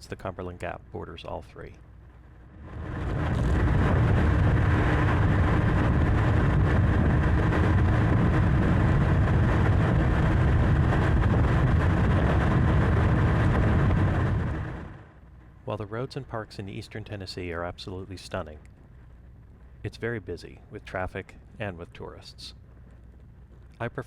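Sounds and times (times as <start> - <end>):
motorcycle engine and road noise: 2.5 - 15.2.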